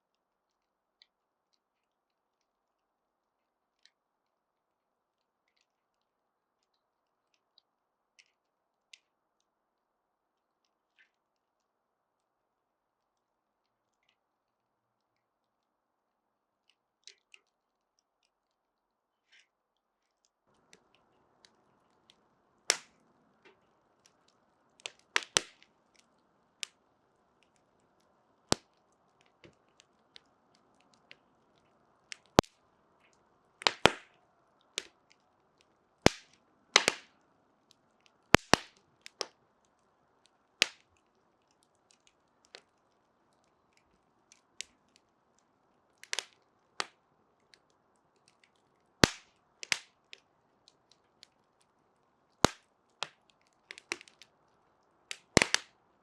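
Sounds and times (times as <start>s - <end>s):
fire crackling and popping: 19.8s - 56.0s.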